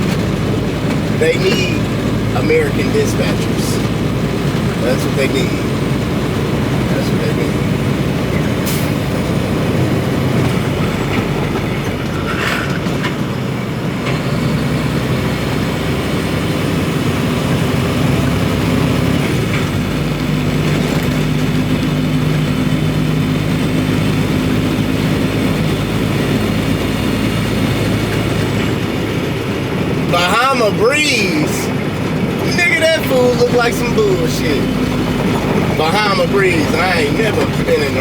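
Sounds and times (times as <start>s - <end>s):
road noise: 0.0s - 38.0s
truck diesel engine drone: 0.0s - 38.0s.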